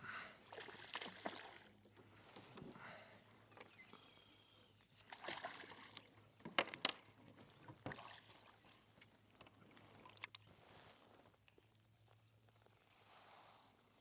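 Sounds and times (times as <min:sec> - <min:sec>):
water splashing and sloshing: 0:00.4 - 0:02.6, 0:05.0 - 0:11.1.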